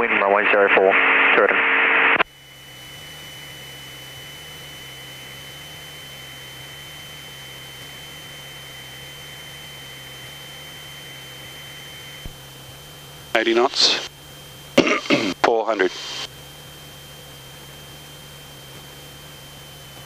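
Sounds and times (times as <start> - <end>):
faint thin high whine: 2.2 - 14.6
aircraft engine and propeller drone: 2.2 - 20.0
steady intercom hiss: 13.3 - 14.1, 14.8 - 16.3.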